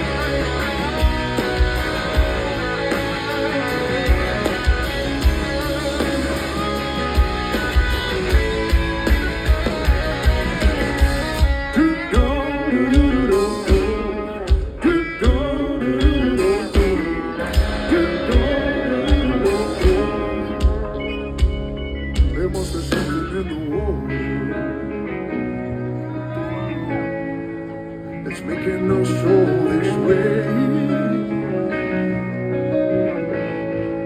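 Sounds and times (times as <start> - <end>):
lead guitar bending notes: 0.0 - 34.0
rock band instrumental: 0.0 - 34.0.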